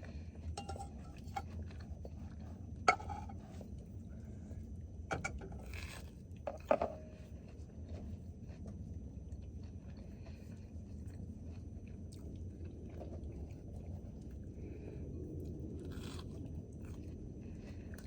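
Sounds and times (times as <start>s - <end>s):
people chewing toasted sandwiches: 0.0s - 6.5s, 7.1s - 18.0s
steady low rumble: 8.8s - 18.0s.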